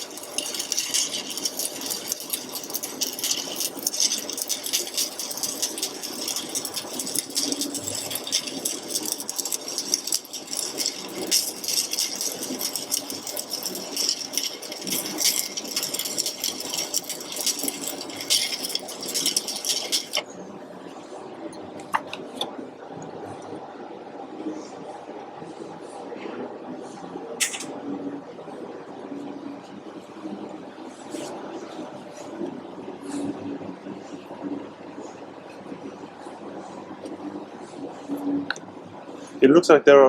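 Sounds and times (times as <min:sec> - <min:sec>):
welding arc crackling and sizzling: 0:00.0 - 0:20.3.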